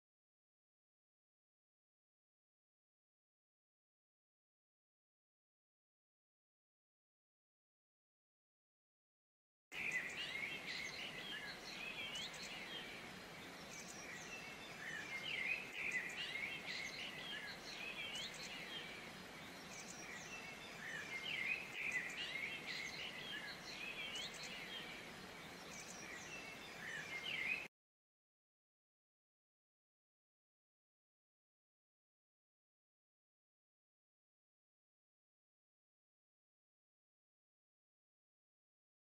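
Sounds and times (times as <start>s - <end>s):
faint steady hiss: 9.7s - 27.7s
small birds twittering: 9.7s - 27.7s.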